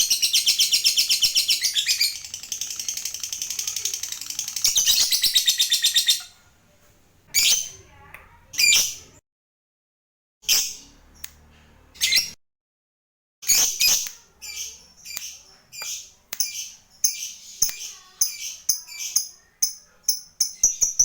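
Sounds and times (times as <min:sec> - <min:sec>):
lovebird chirping: 0:00.0 - 0:06.4, 0:13.4 - 0:21.0.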